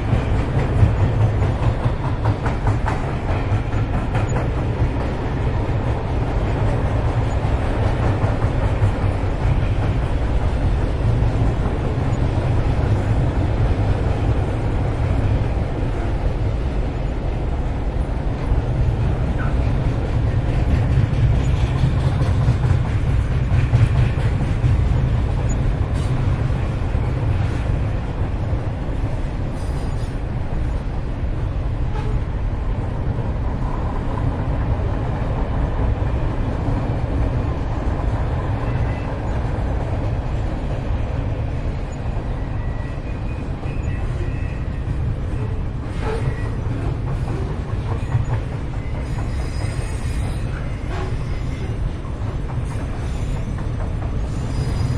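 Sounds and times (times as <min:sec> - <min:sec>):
train rumbling on rails: 0:00.0 - 0:54.9
faint wheel squeals: 0:54.2 - 0:54.9.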